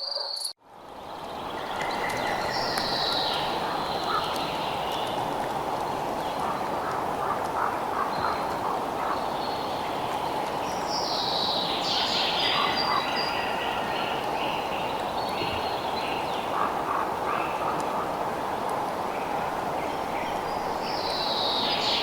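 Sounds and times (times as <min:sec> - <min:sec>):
outdoor ambience hiss: 0:00.6 - 0:22.0
bird calls: 0:01.1 - 0:18.2.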